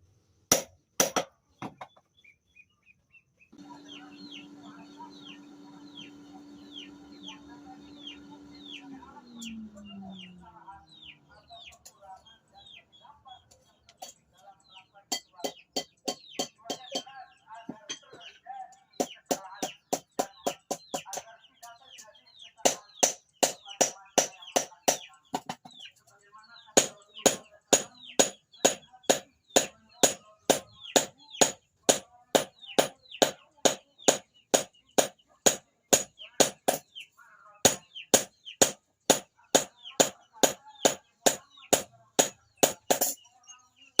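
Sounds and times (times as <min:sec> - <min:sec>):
chickens clucking: 0:03.6 - 0:22.6
hammer beating steel on anvil: 0:22.7 - 0:25.1, 0:26.8 - 0:36.9, 0:37.7 - 0:43.2.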